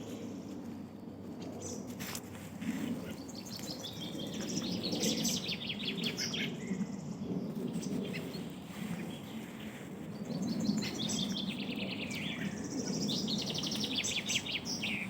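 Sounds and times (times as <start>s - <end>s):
songbirds trilling: 1.3s - 15.0s.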